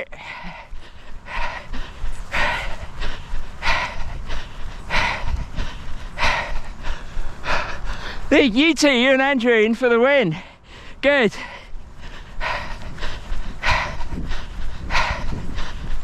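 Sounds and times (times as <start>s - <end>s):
person panting: 0.0s - 9.5s, 10.1s - 16.0s.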